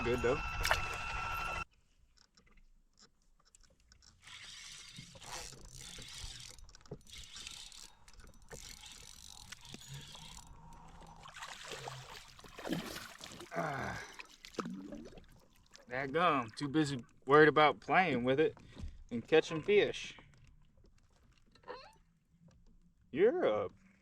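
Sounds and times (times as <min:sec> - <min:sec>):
fishing reel winding: 0:04.0 - 0:11.0.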